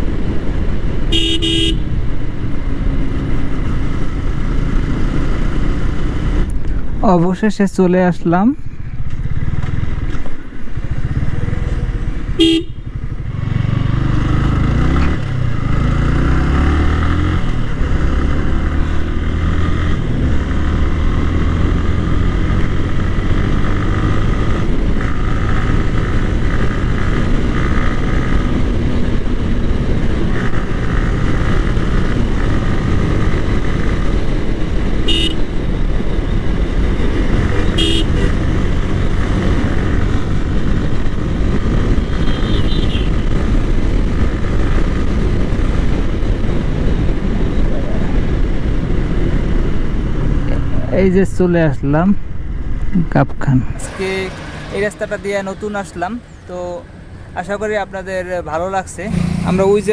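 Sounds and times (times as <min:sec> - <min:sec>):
motorcycle engine running: 0:01.1 - 0:06.3, 0:08.7 - 0:48.0.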